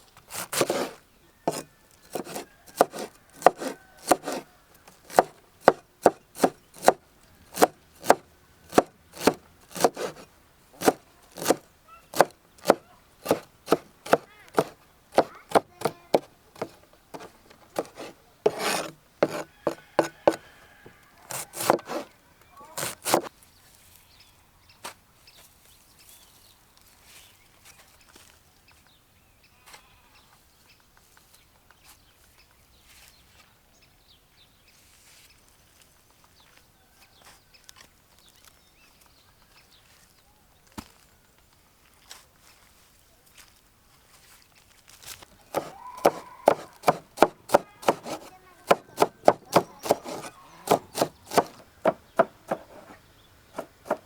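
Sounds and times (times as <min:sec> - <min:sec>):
knife chopping on wooden board: 0:00.3 - 0:11.6, 0:12.2 - 0:20.5, 0:21.3 - 0:22.1, 0:22.8 - 0:23.3, 0:45.5 - 0:53.0, 0:53.6 - 0:54.0.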